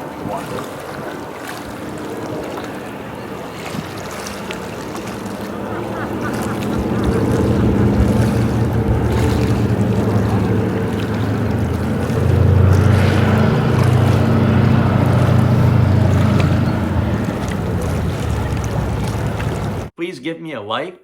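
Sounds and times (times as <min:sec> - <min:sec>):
piston aircraft engine running: 0:00.0 - 0:19.9
wind noise on microphone: 0:05.5 - 0:19.9.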